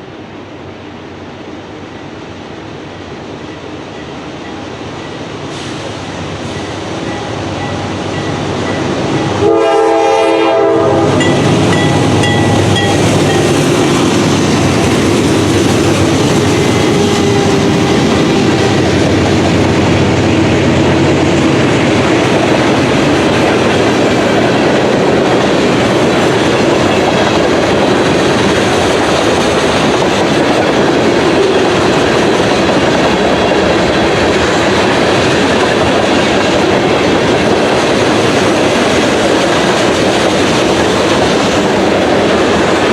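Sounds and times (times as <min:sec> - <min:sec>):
train rumbling on rails: 0:00.0 - 0:42.9
locomotive horn blast: 0:09.2 - 0:11.4, 0:16.6 - 0:18.8.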